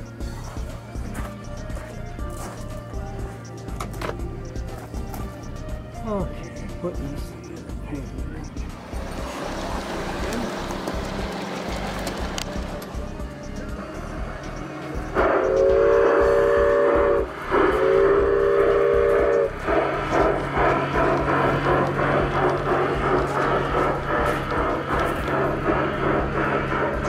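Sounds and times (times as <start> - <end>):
model train running hum: 0.0 - 27.0
model train chord whistle: 8.7 - 27.0.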